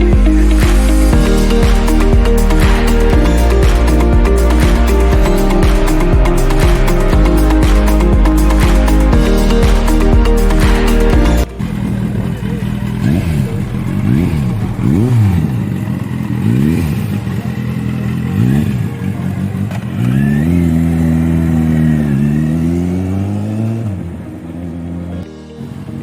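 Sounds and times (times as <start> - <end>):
motorcycle engine revving: 11.4 - 25.0.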